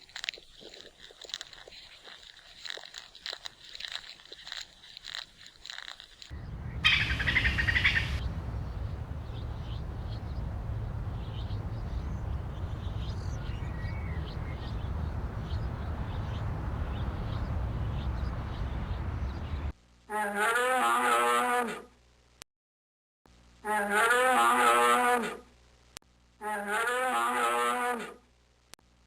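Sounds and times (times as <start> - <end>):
small birds chirping: 6.3 - 19.7
steady low rumble: 6.3 - 19.7.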